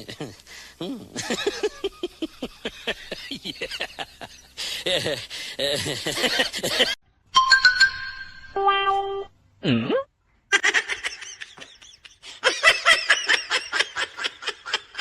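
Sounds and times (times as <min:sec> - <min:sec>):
person laughing hard: 0:01.0 - 0:07.0.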